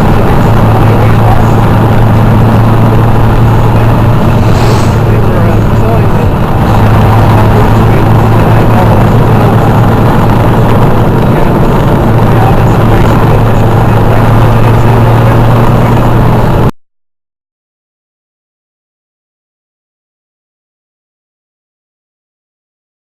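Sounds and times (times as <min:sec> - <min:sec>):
motorcycle engines rumbling: 0:00.0 - 0:16.7.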